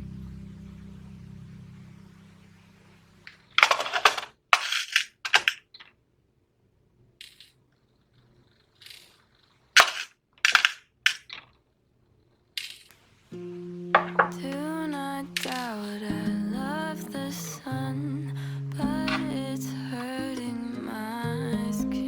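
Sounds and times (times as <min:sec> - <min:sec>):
background music: 0:13.4 - 0:22.0.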